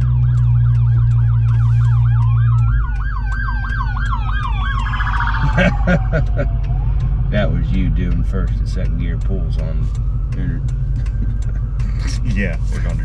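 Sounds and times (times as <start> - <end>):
car engine droning: 0.0 - 13.0
siren slow wail: 0.0 - 13.0
police siren fast yelp: 0.2 - 6.9.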